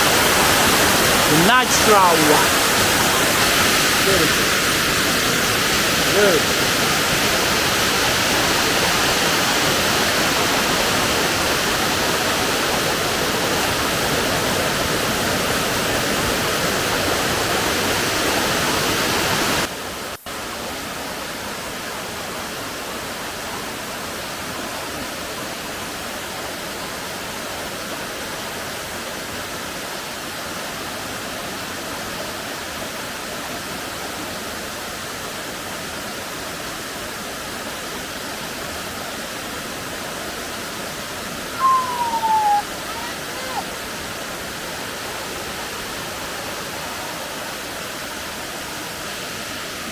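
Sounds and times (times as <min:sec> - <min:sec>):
waterfall rushing: 0:00.0 - 0:19.7, 0:41.2 - 0:49.9.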